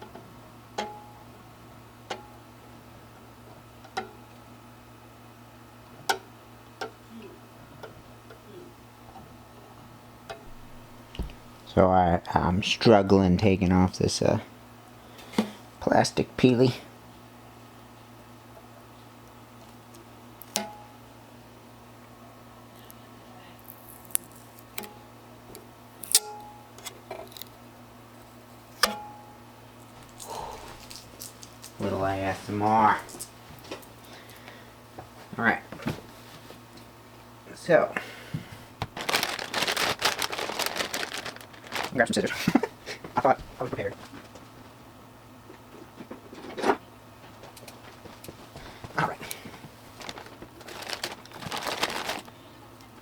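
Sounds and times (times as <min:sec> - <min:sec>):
plastic film rustling: 0:23.6 - 0:24.9, 0:29.8 - 0:33.4, 0:38.8 - 0:44.4, 0:47.8 - 0:53.0.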